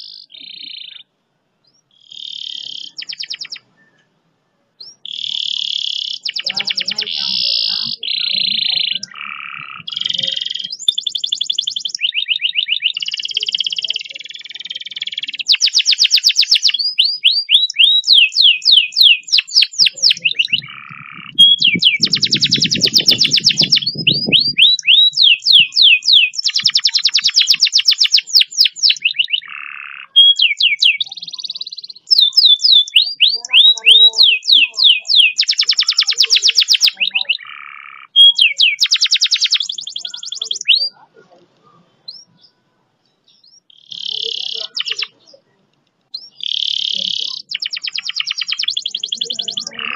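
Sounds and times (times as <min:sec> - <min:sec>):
canary singing trills: 0:00.0 - 0:49.9.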